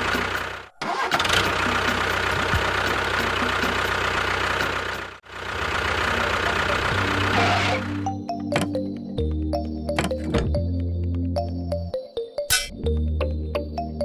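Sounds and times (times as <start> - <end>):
engine chugging: 0.0 - 8.8.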